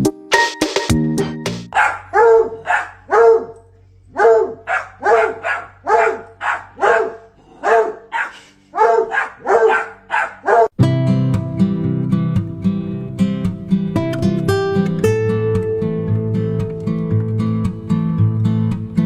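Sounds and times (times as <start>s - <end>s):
dog barking: 1.7s - 10.8s.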